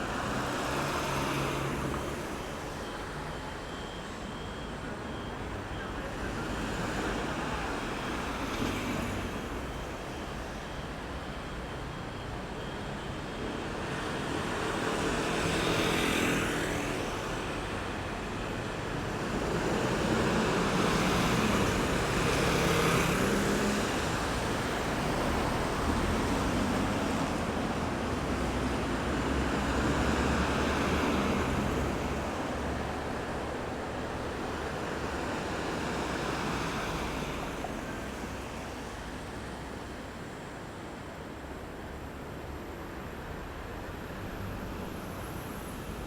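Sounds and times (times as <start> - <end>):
vehicles passing: 19.4 - 40.3.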